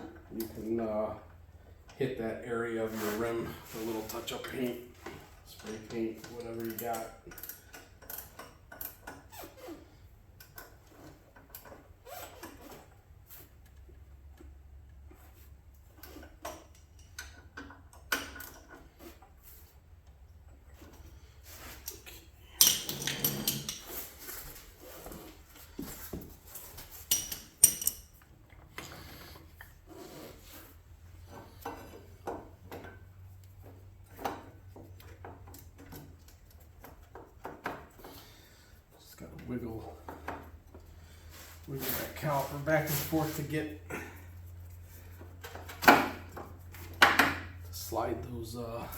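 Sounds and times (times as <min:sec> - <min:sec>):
handling parts and tools: 0:20.5 - 0:47.8.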